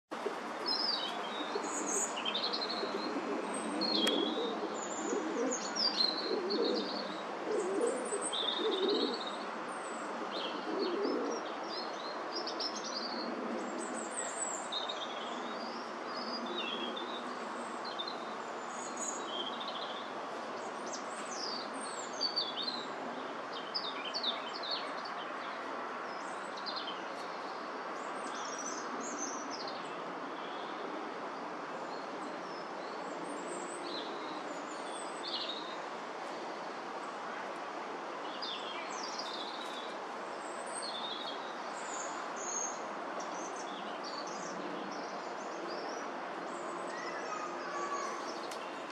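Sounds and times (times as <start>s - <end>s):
background hiss: 0.1s - 12.4s
birds chirping: 0.2s - 7.0s.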